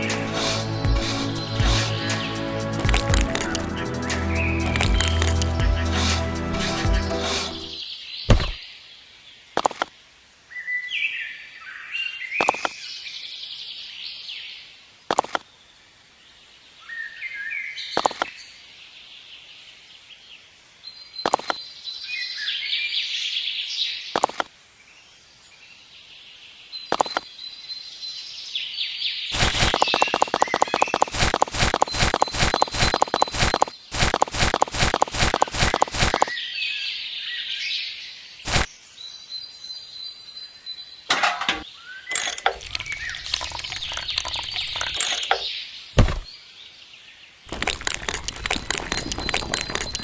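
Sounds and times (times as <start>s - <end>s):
birds chirping: 0.0s - 8.7s, 29.3s - 37.1s, 38.4s - 50.0s
sharp click: 18.0s - 18.3s, 21.2s - 21.6s, 24.2s - 24.5s, 26.9s - 27.3s, 29.4s - 36.3s
fast run of taps: 29.4s - 36.3s.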